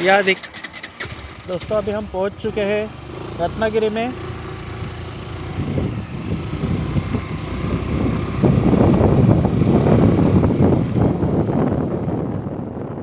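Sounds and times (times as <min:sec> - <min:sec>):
scooter engine: 0:00.0 - 0:13.0
wind buffeting microphone: 0:04.0 - 0:13.0.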